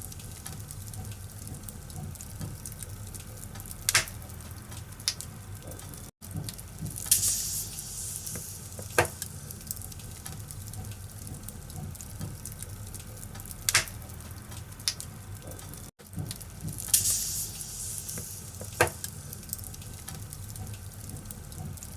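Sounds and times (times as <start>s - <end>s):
firewood burning crackling: 0.0s - 21.9s.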